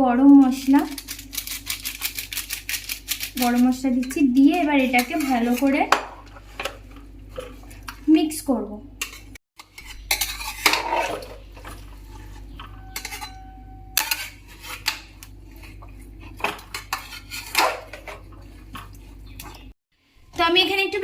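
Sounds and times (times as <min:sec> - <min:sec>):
spatula scraping in a cooking pot: 0:00.4 - 0:08.0, 0:09.0 - 0:19.3
ringing note from pot: 0:12.6 - 0:14.2.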